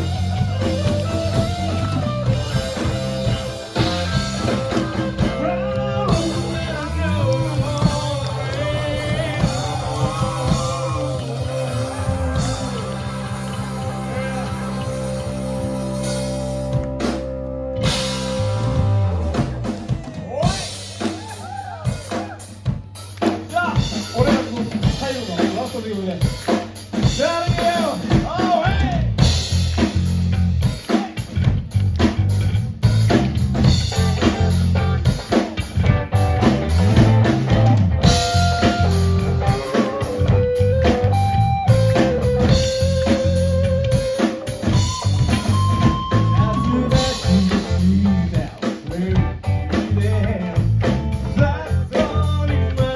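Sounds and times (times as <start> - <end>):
lead guitar bending notes: 0.0 - 19.7, 35.8 - 48.4
drum kit beat: 0.0 - 52.9
rock band playing: 0.0 - 52.9.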